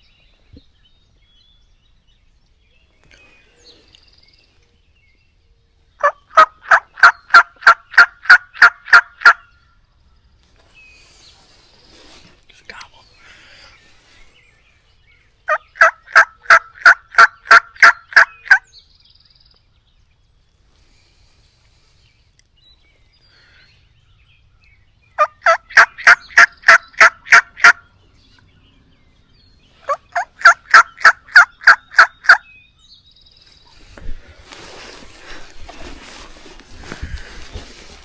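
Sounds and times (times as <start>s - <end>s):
turkey yelping: 6.0s - 9.4s, 15.5s - 18.6s, 25.2s - 27.8s, 29.8s - 32.4s.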